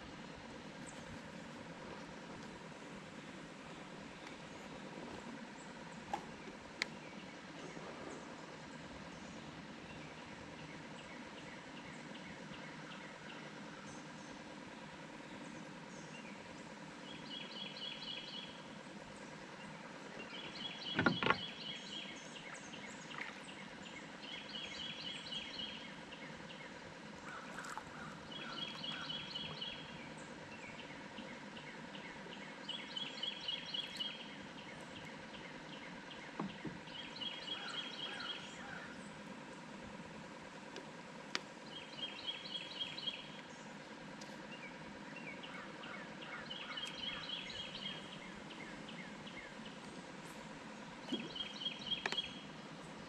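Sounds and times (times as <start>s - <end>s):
songbird trilling: 20.2s - 23.0s, 27.2s - 30.0s, 30.6s - 39.0s, 41.6s - 43.4s, 44.5s - 49.8s, 51.0s - 52.5s.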